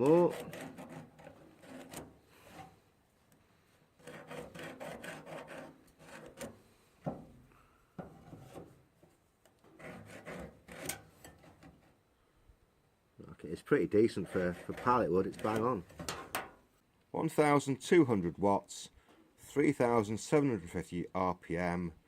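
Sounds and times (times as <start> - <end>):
wood rubbing and scraping: 0.0 - 2.8, 4.0 - 7.3, 8.0 - 12.0, 13.9 - 16.4.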